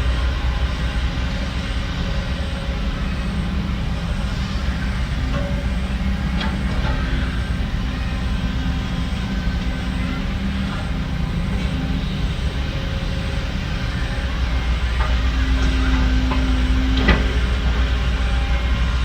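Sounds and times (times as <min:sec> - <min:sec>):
heavy machinery diesel engine running: 0:00.0 - 0:19.0
faint metal clanks: 0:04.4 - 0:18.2.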